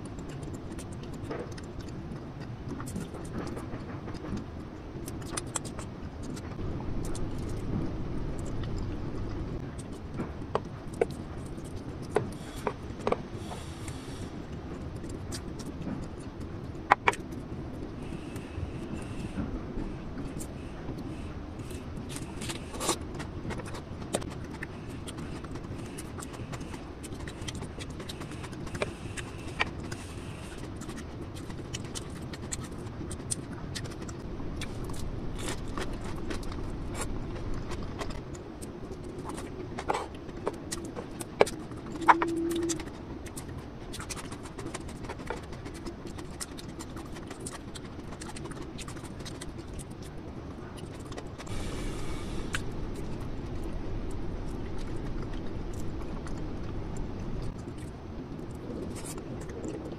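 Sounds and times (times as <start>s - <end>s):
chewing and lip-smacking: 0.0s - 59.9s
low hum: 0.0s - 59.9s
mouth clicks: 39.2s - 44.2s.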